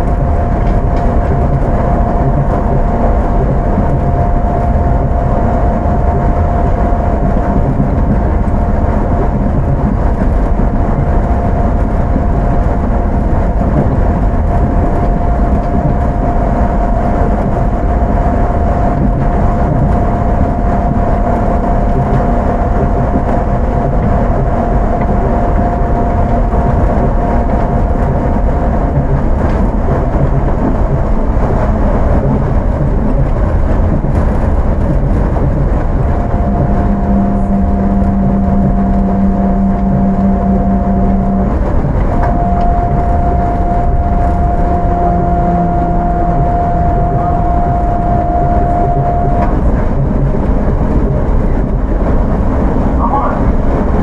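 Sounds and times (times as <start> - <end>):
train rolling noise: 0.0 - 54.0
electric motor whine: 35.0 - 54.0.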